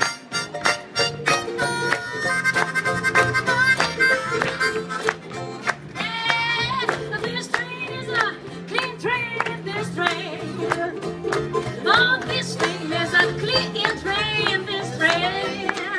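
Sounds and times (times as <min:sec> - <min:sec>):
harmonica melody: 0:00.0 - 0:06.8
rhythmic guitar strumming: 0:00.0 - 0:15.9
walking bass: 0:00.0 - 0:15.9.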